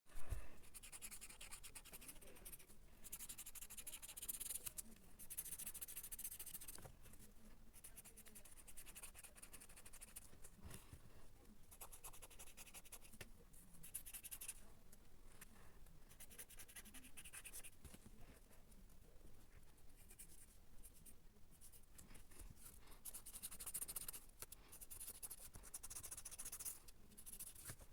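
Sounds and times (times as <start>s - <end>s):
drawing tool scratching paper: 24.8s - 27.8s.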